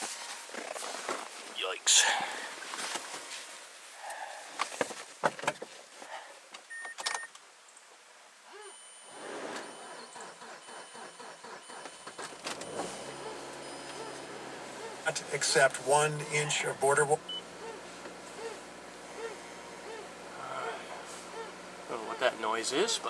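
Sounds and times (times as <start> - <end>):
engine starter cranking: 9.1 - 16.4
car engine idling: 9.1 - 23.0.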